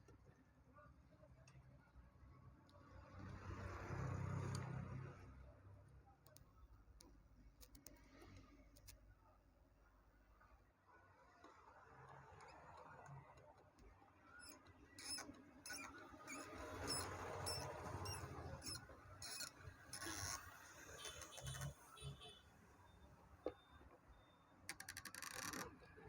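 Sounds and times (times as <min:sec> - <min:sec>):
faint metallic clicks and scraping: 0:06.2 - 0:22.4, 0:23.4 - 0:26.0.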